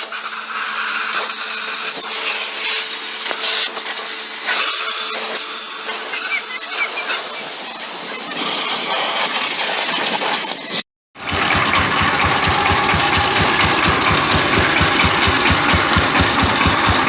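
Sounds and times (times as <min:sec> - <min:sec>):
pressure washer spraying water: 0:00.0 - 0:10.8, 0:12.1 - 0:17.0
washer motor hum: 0:00.0 - 0:17.0.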